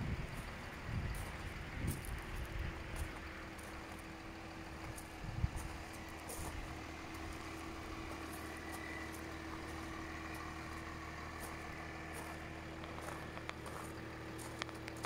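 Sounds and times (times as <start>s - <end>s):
diesel car engine idling: 0.0s - 15.0s
footsteps on gravel: 0.1s - 15.0s.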